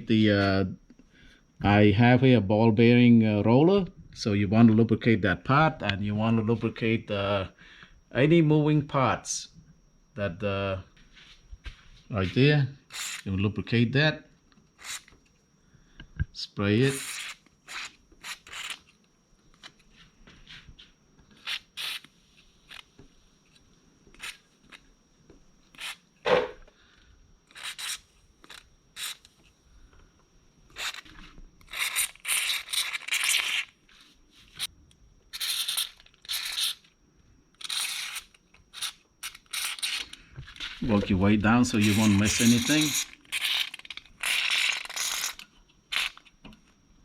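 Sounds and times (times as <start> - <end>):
sharp knock: 26.2 - 26.6.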